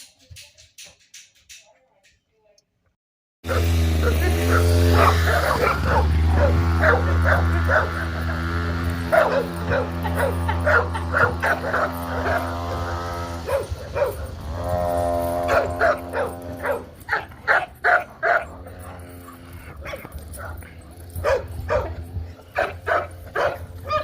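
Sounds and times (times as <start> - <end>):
puppies yipping and barking: 3.5 - 24.0.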